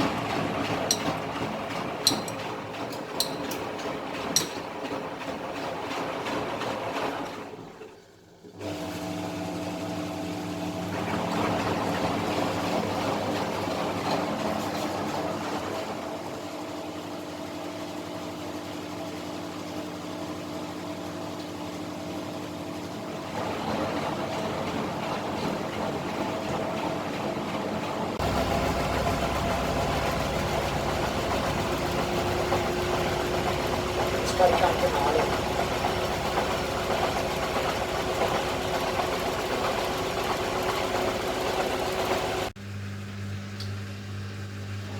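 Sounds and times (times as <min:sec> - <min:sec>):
drum and water churning: 0:00.0 - 0:07.3, 0:23.3 - 0:42.6
washing machine motor hum: 0:00.0 - 0:44.9.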